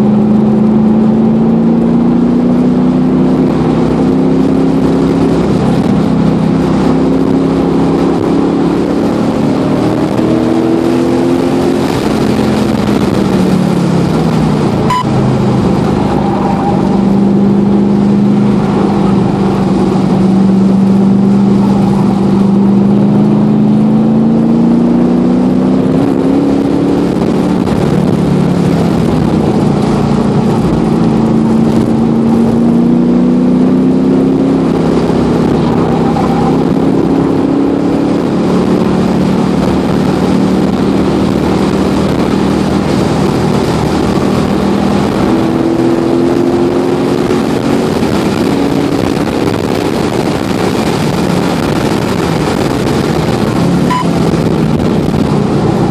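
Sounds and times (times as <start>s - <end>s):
car engine accelerating: 0.0s - 55.9s
wind and road noise: 0.0s - 55.9s.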